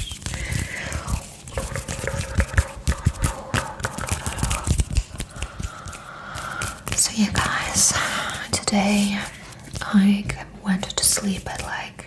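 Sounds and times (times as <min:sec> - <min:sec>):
hands tapping on tabletop: 0:01.1 - 0:07.8.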